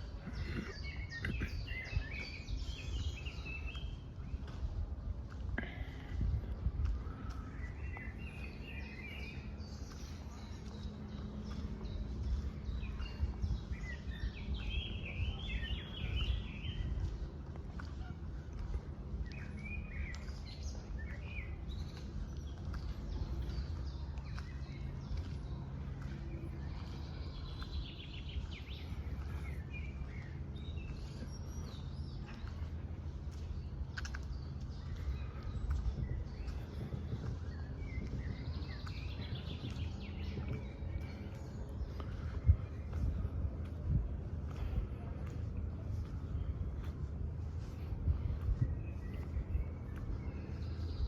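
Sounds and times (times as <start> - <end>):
low background rumble: 0.0 - 51.0
small songbird singing: 7.1 - 17.3.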